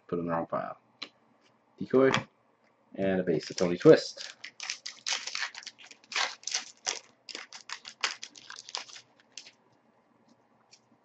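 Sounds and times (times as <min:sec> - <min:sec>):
foil wrapper crinkling: 0:03.4 - 0:09.6.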